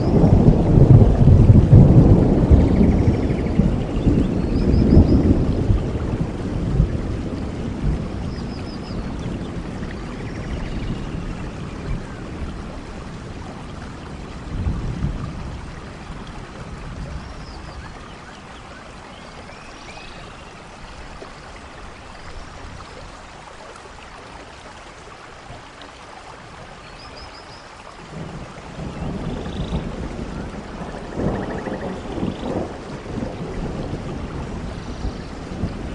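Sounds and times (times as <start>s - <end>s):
distant thunder rumble: 0.0s - 19.6s, 28.0s - 35.9s
steady rain: 0.0s - 35.9s.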